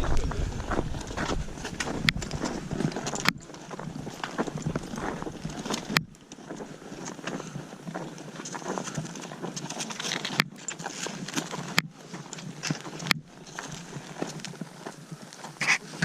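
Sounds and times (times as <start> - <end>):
clothing and gear rustling: 0.0 - 16.0
footsteps crunching through snow: 0.0 - 16.0.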